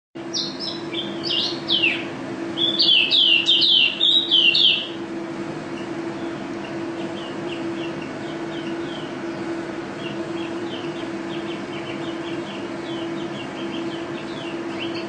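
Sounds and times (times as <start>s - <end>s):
songbird chirping: 0.3s - 5.0s, 5.7s - 15.0s.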